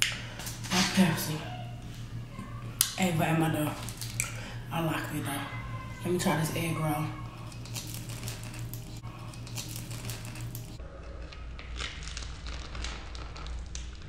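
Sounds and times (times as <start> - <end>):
steady low hum: 0.0 - 14.0
crunching and chewing: 7.2 - 14.0.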